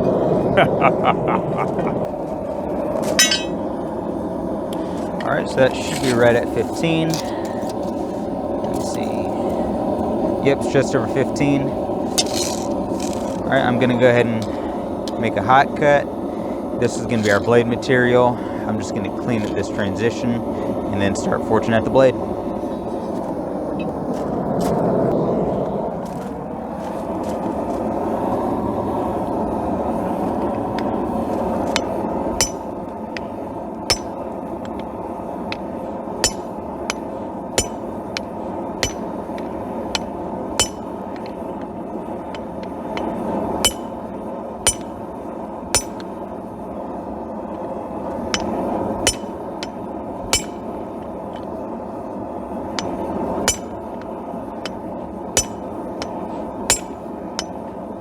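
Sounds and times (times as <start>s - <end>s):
steady rushing noise: 0.0s - 58.0s
hammer striking steel on anvil: 3.1s - 3.7s, 31.7s - 33.3s, 33.9s - 34.8s, 35.5s - 41.4s, 42.3s - 45.0s, 45.7s - 46.1s, 48.3s - 50.8s, 52.8s - 54.8s, 55.4s - 57.6s.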